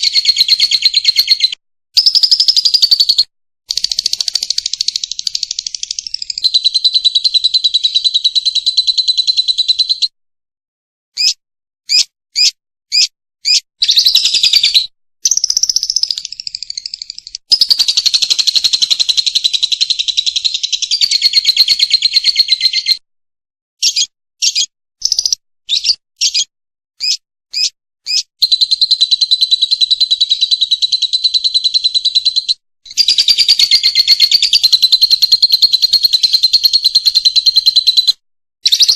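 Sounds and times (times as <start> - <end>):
lovebird chattering trills: 0.0 - 9.8, 11.9 - 23.0, 27.0 - 38.1
short sharp bird chirps: 11.2 - 23.0, 23.8 - 30.8.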